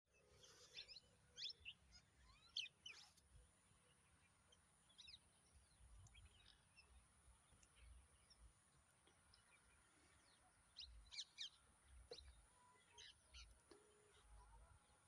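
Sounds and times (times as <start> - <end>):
faint bird chirps: 0.1 - 3.2, 9.1 - 15.0.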